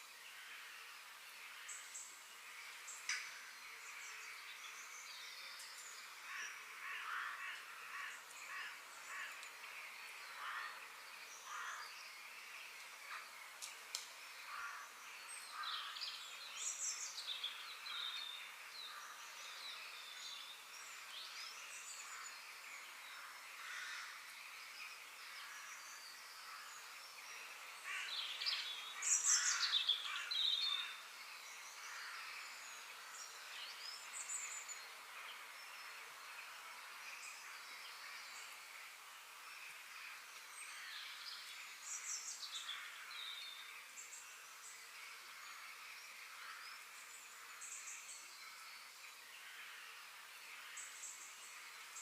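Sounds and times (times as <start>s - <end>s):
steady background hiss: 0.0s - 52.0s
birds chirping and calling: 25.3s - 35.0s.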